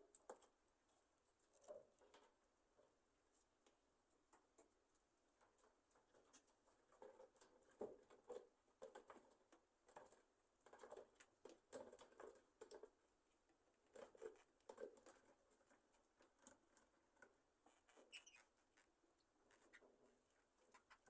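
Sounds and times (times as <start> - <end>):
birds rustling and clicking: 0.0 - 21.0
soft bird chirp: 17.9 - 18.6.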